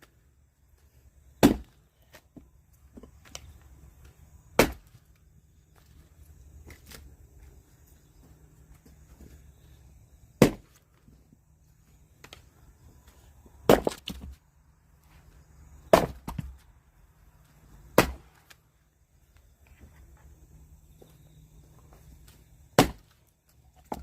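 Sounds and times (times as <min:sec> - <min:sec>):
axe chopping logs: 0:01.3 - 0:03.6, 0:04.4 - 0:05.1, 0:10.3 - 0:10.9, 0:13.6 - 0:14.4, 0:15.8 - 0:16.6, 0:17.9 - 0:18.6, 0:22.3 - 0:24.0
wood splitting crackle: 0:01.4 - 0:05.3, 0:10.4 - 0:11.1, 0:15.8 - 0:16.6, 0:17.9 - 0:18.7, 0:22.2 - 0:24.0.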